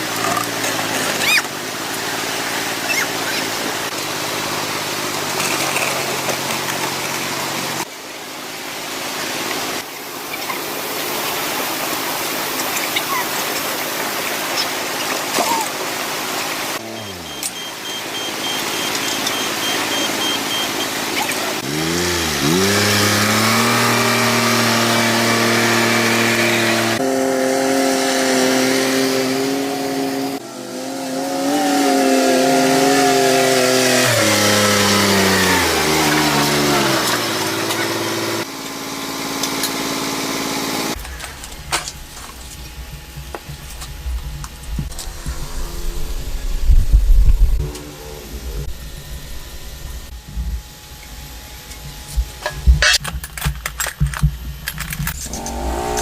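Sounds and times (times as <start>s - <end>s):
tractor engine revving: 16.6s - 38.5s, 55.2s - 56.0s.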